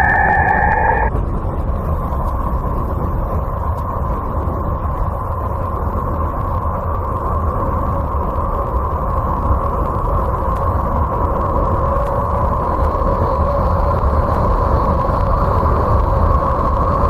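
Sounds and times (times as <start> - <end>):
faint steady tone: 0.0 - 1.1
dense rumbling noise: 0.0 - 17.0.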